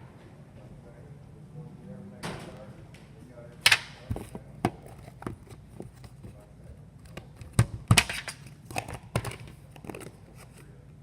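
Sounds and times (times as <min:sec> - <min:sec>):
knocks and crinkles of small objects: 0:03.7 - 0:10.7.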